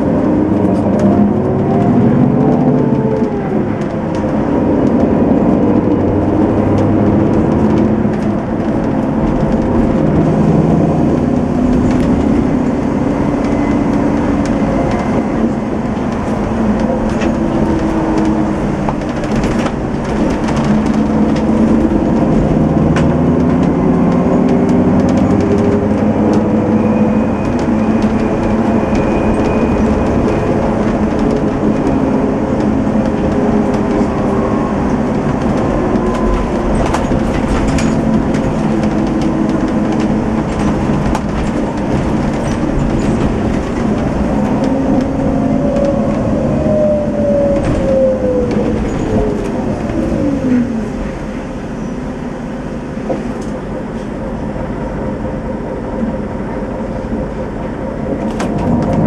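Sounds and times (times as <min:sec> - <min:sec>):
clicks and knocks from bus body: 0:00.0 - 0:50.7, 0:52.9 - 0:54.1, 0:56.9 - 0:59.0
bus engine running: 0:00.0 - 0:59.0
road noise: 0:00.0 - 0:59.0.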